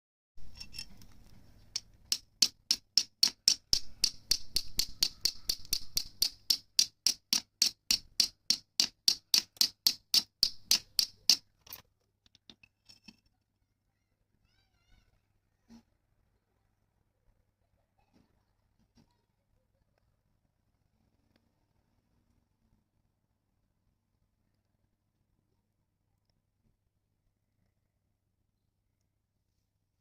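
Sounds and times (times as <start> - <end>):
flint striking fire steel: 1.7 - 11.5.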